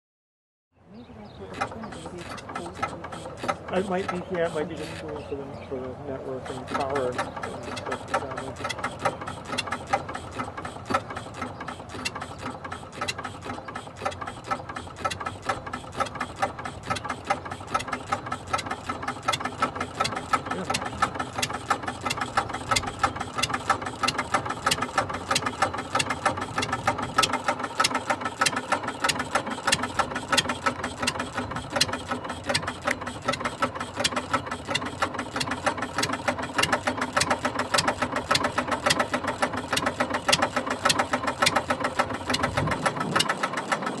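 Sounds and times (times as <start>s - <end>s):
single-cylinder engine clattering: 0.9s - 44.0s.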